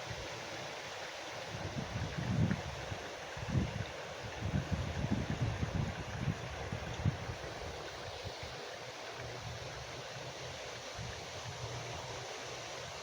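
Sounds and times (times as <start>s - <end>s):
wind buffeting microphone: 1.5s - 2.8s, 3.4s - 7.5s.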